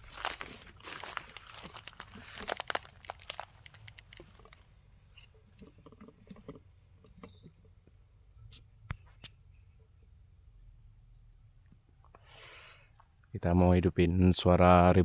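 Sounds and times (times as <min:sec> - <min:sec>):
camera handling rustle: 0:00.0 - 0:04.6
insects droning: 0:00.0 - 0:15.0.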